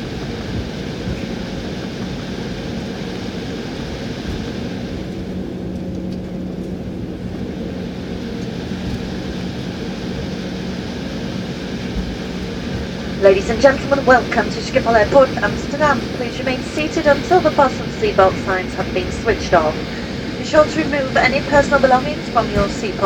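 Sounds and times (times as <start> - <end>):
jet engine cabin rumble: 0.0 - 23.0
low hum: 0.0 - 23.0.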